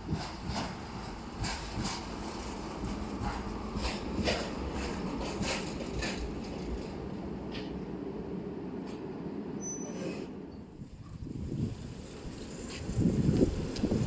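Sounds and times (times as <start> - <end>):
wheels clicking on rails: 0.0 - 7.8
tram rumbling on track: 0.0 - 14.0.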